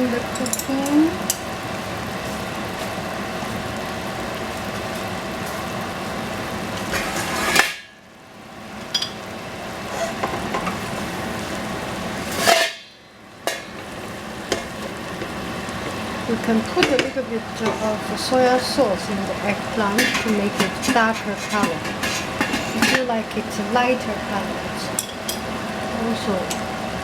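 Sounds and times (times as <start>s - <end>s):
eggplant sizzling in a pan: 0.0s - 27.0s
utensil clattering against pan: 0.3s - 1.4s, 19.8s - 23.1s.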